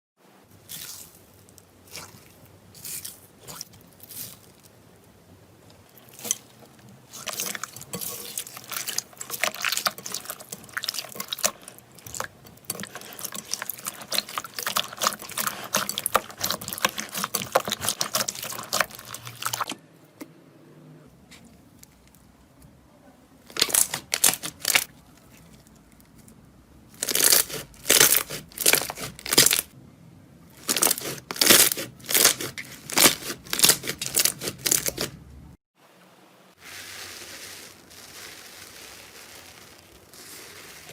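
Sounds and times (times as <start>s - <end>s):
slime squeezed crackling and popping: 7.1s - 19.7s, 23.5s - 26.1s, 27.0s - 29.7s, 30.6s - 35.1s.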